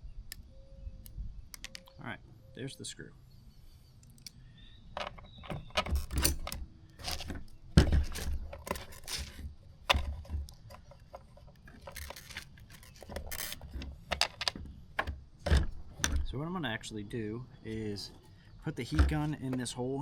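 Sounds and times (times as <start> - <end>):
plastic parts clicking and tapping: 1.5 - 2.0, 5.0 - 16.3, 18.8 - 19.8.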